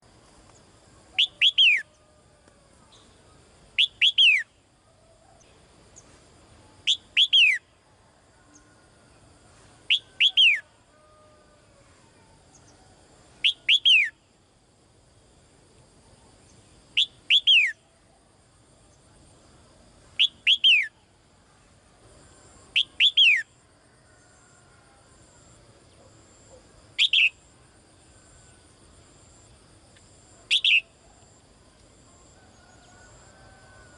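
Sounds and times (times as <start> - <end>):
songbird whistling calls: 1.2 - 1.9, 3.8 - 4.6, 6.8 - 7.6, 9.9 - 10.6, 13.4 - 14.2, 17.0 - 17.8, 20.2 - 21.0, 22.7 - 23.5, 27.0 - 27.4, 30.5 - 31.0.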